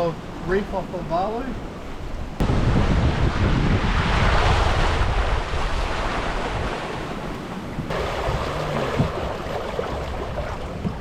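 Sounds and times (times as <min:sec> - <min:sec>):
water rushing past hull: 0:01.6 - 0:11.0
wind buffeting microphone: 0:01.7 - 0:11.0.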